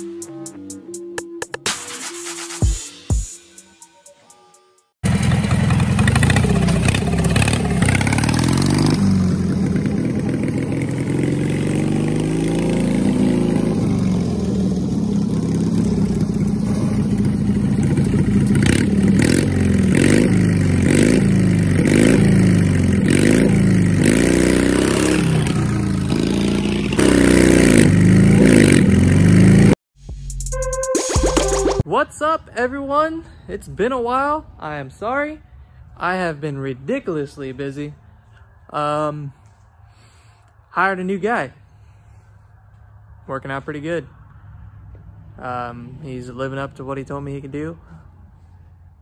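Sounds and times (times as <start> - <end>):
lawn mower engine revving: 5.0 - 29.8.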